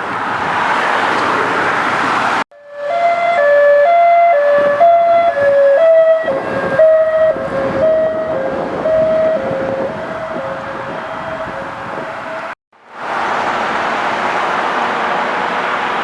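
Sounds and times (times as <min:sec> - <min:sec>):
road traffic noise: 0:00.0 - 0:16.0
two-tone emergency siren: 0:02.5 - 0:12.6.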